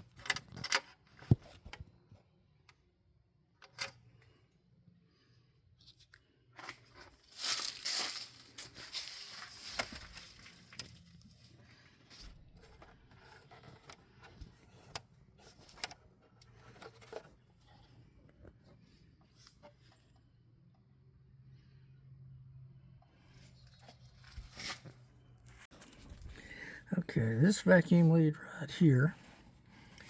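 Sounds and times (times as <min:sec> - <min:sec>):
rustling and scraping: 0:05.1 - 0:20.3, 0:23.1 - 0:26.4.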